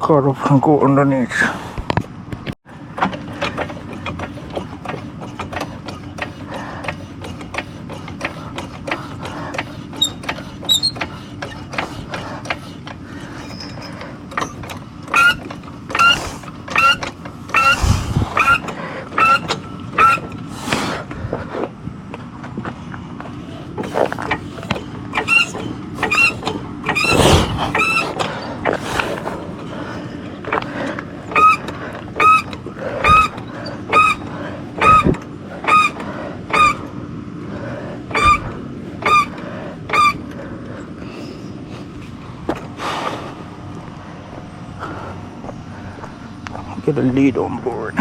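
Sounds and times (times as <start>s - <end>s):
car jack clicking and squeaking: 2.8s - 20.5s, 23.4s - 37.0s, 38.0s - 40.4s.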